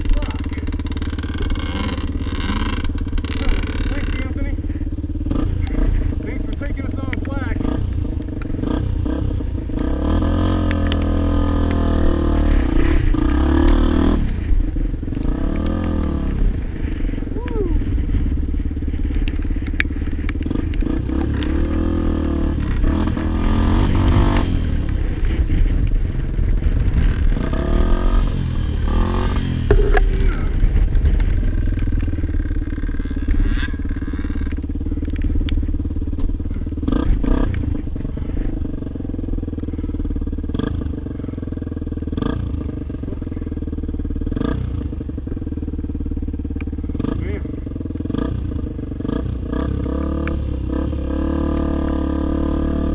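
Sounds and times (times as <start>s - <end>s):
motorcycle engine revving: 0.0s - 52.9s
knocks and clatter: 29.6s - 34.6s.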